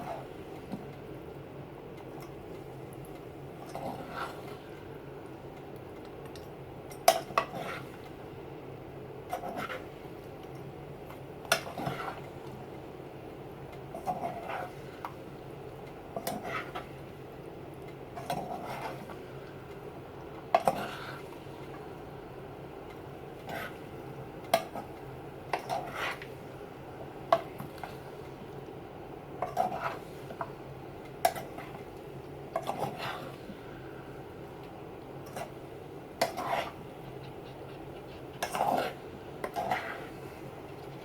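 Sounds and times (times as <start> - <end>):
utensil scraping a pan: 7.3 - 8.0, 9.3 - 9.9, 11.5 - 12.3, 14.0 - 15.0, 16.2 - 16.9, 18.2 - 19.2, 23.4 - 23.9, 25.5 - 26.4, 29.4 - 30.4, 36.2 - 41.0.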